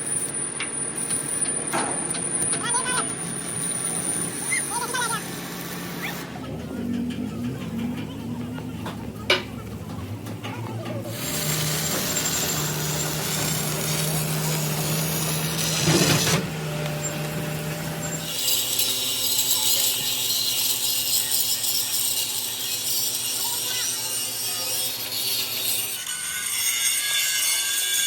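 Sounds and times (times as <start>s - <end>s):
machine hum: 0.0s - 19.6s
high hissing grinding: 11.1s - 26.1s.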